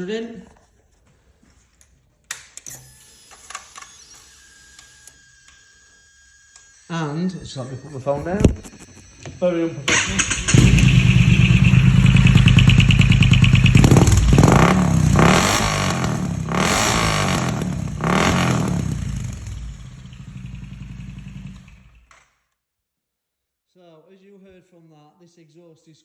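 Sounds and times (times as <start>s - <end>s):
motorcycle engine idling and revving: 9.9s - 22.1s.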